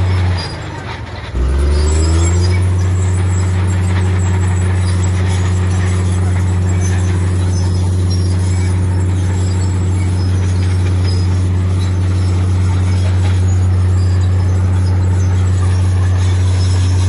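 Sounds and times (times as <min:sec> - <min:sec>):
heavy diesel engine droning: 0:00.0 - 0:17.0.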